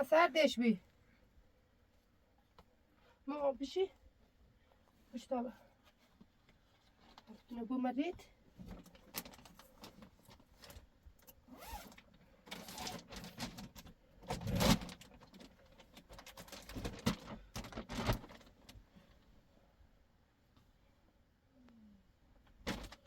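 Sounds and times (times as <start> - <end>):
handling rustles and knocks: 4.1 - 19.4, 22.5 - 23.0.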